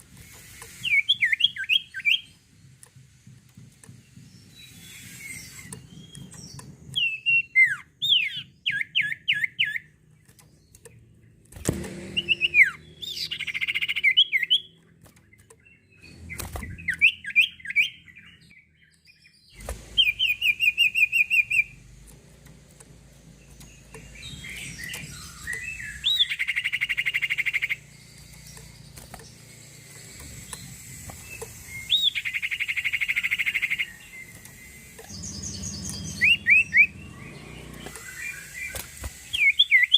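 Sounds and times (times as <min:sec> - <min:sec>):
songbird chirping and trilling: 0:00.0 - 0:39.9.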